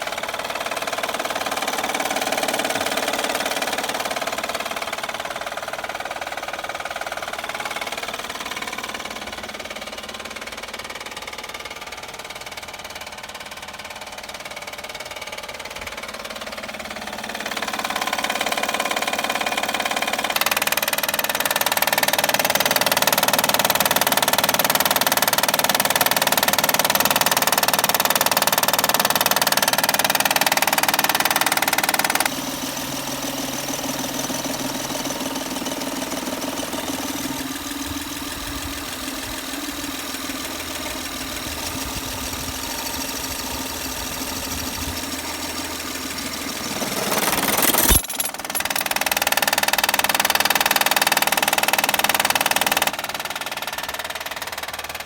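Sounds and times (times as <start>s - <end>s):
car engine knocking: 0.0s - 32.3s, 48.3s - 55.0s.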